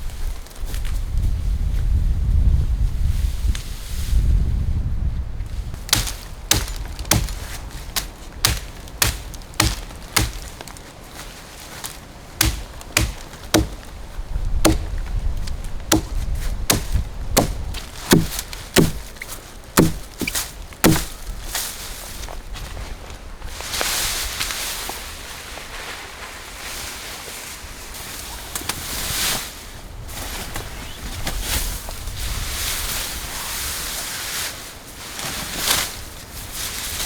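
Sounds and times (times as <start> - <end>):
axe chopping wood: 5.8 - 10.8, 12.4 - 14.0, 14.6 - 15.1, 15.9 - 19.2, 19.8 - 21.2.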